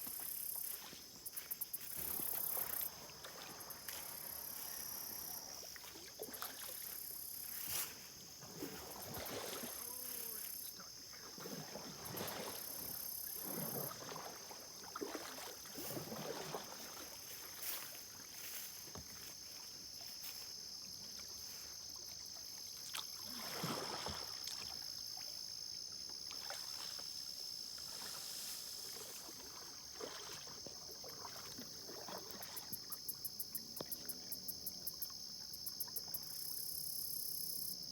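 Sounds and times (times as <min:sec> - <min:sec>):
high-pitched insect chorus: 0:00.0 - 0:15.5
paddle strokes splashing in water: 0:00.0 - 0:20.4, 0:21.0 - 0:34.2
rapid insect chirping: 0:00.0 - 0:37.9.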